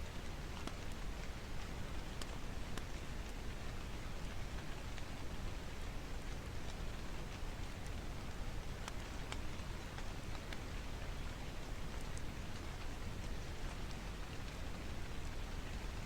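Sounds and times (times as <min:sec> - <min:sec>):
steady rain with low rumble: 0:00.0 - 0:16.0.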